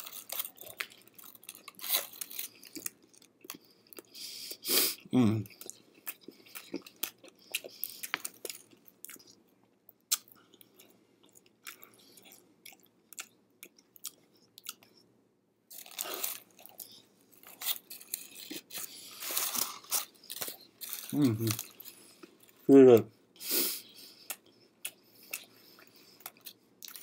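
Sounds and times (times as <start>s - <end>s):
chewing crusty bread: 0.0s - 15.1s, 15.7s - 22.7s, 23.9s - 27.0s.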